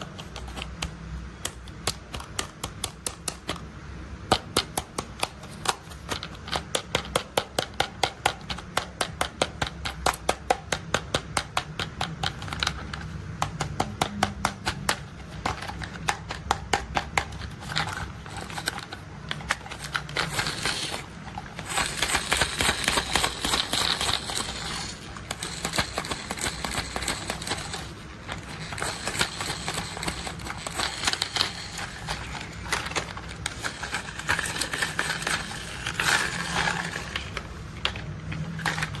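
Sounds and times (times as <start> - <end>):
plastic toy clicking: 0.0 - 3.6, 4.2 - 39.0
rustling and scraping: 17.3 - 39.0.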